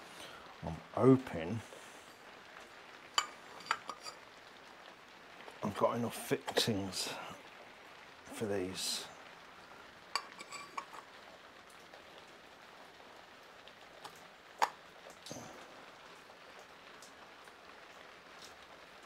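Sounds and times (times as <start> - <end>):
low steady hiss: 0.0 - 19.0
metal fixings clinking: 10.2 - 11.1.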